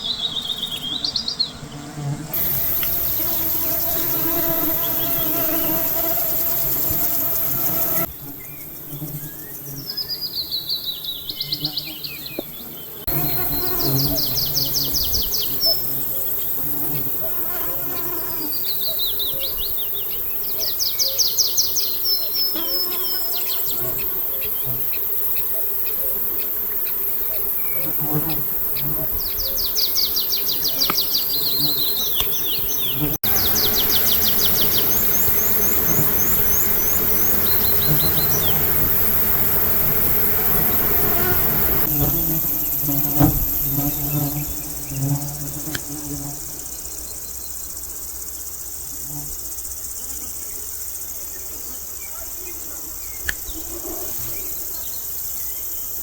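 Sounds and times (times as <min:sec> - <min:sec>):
insects buzzing: 0:00.0 - 0:56.0
high chirring of insects: 0:02.3 - 0:11.2, 0:13.0 - 0:56.0
songbird trilling: 0:28.8 - 0:39.5.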